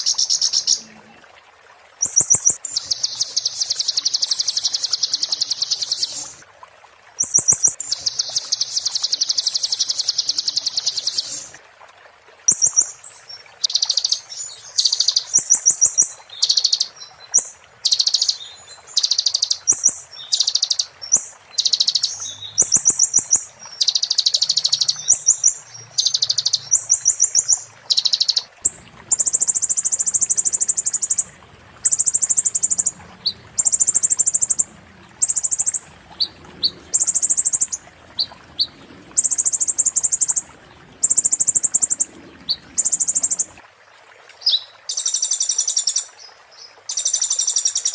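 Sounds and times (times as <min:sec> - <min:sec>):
sunbird singing rattling trills: 0:13.6 - 0:40.4.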